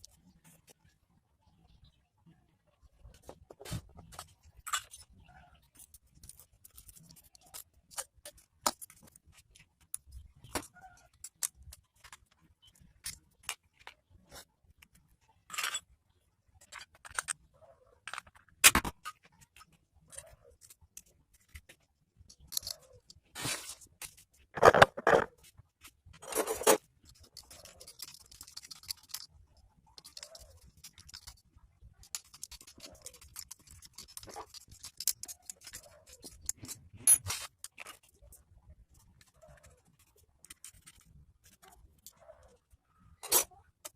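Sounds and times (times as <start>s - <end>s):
metal tools clicking and scraping: 4.2s - 14.0s, 15.4s - 15.9s, 16.6s - 17.4s, 22.3s - 23.3s, 24.1s - 25.3s, 26.2s - 31.4s, 32.0s - 38.4s, 43.2s - 43.9s.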